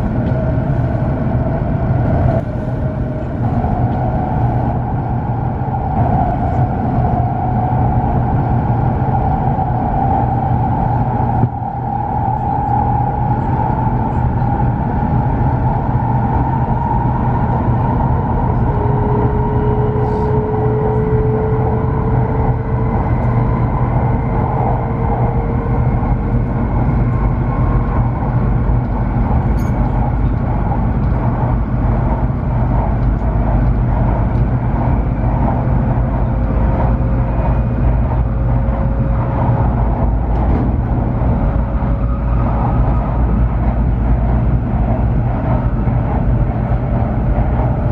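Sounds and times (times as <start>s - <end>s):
train wheels rumbling on rail: 0.0s - 47.9s
faint whining tones: 15.7s - 44.2s.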